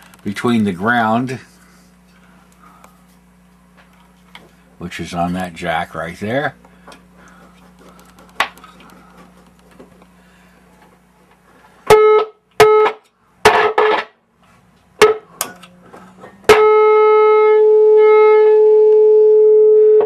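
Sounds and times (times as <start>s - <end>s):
test tone through speaker: 16.5s - 20.0s.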